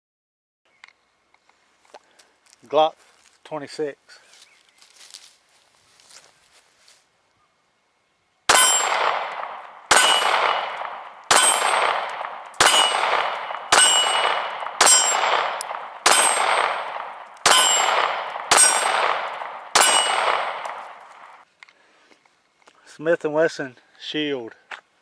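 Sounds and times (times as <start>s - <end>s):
pistol shots ringing: 8.5s - 21.4s.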